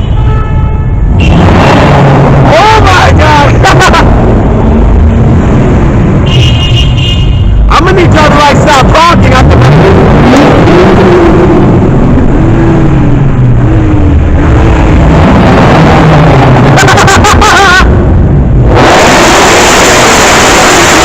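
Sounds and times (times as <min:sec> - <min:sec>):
car engines revving: 0:01.1 - 0:06.8, 0:07.6 - 0:21.0
loud rushing noise: 0:07.9 - 0:21.0.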